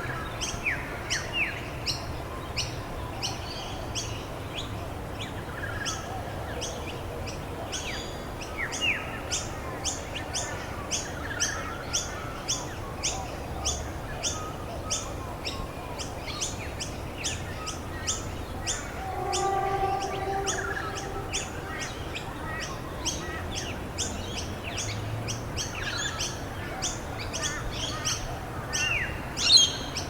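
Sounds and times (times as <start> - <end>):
bird repeating high call: 18.7 - 21.9.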